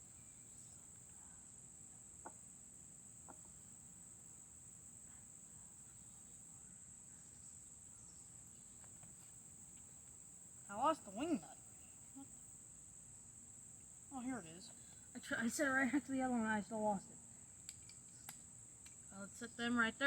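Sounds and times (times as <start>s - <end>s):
faint clicks: 17.6s - 19.0s.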